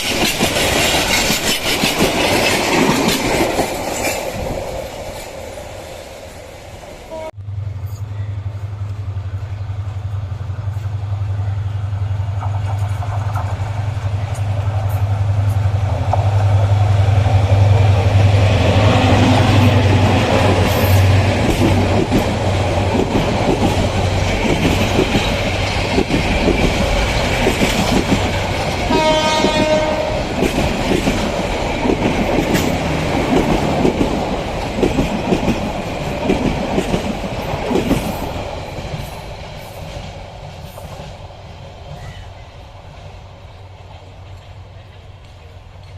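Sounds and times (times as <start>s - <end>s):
train wheels clattering over rail joints: 0.0s - 5.5s, 19.5s - 45.9s
train passing: 0.0s - 45.9s
train horn blast: 7.1s - 8.7s, 28.9s - 30.4s.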